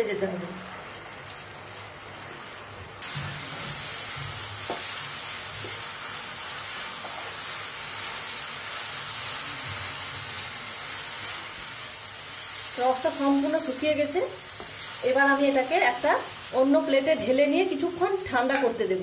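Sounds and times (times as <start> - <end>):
food sizzling in a pan: 0.0 - 19.0
spatula taps: 4.6 - 4.9, 14.6 - 14.8
wooden spatula stirring and scraping: 12.3 - 15.9.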